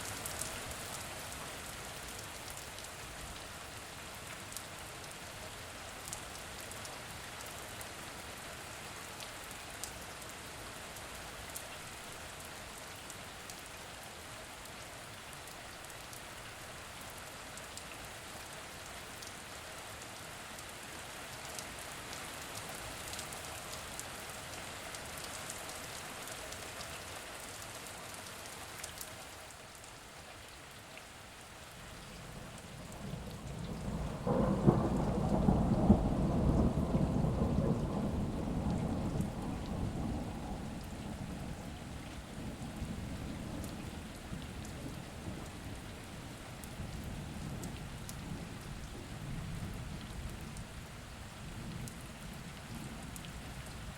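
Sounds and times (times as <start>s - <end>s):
steady rain falling: 0.0s - 53.9s
rain drop ticks: 32.0s - 42.8s, 46.6s - 49.0s, 51.6s - 53.8s
low rumble of thunder: 32.0s - 53.9s.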